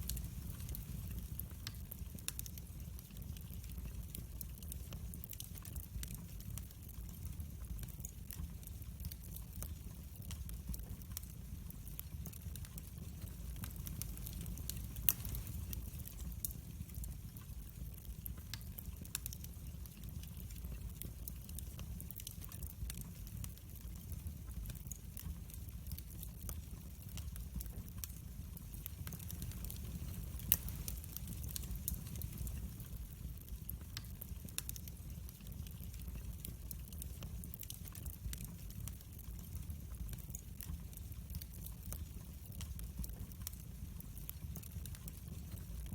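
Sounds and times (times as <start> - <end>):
fire low rumble: 0.0 - 45.9
wood fire crackles and pops: 0.0 - 45.9.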